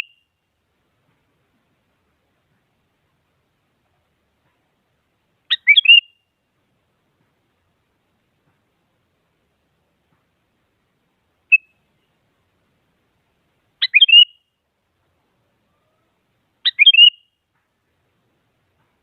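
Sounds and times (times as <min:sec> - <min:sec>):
bird whistled calls: 0:05.5 - 0:06.2, 0:11.5 - 0:11.8, 0:13.8 - 0:14.4, 0:16.6 - 0:17.3.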